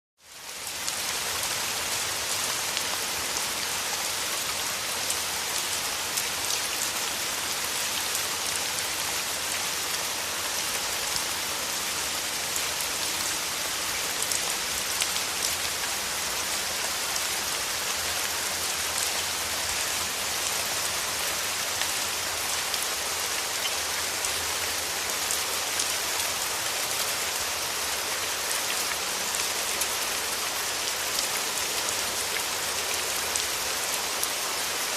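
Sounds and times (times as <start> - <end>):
heavy rain falling: 0.2 - 34.9.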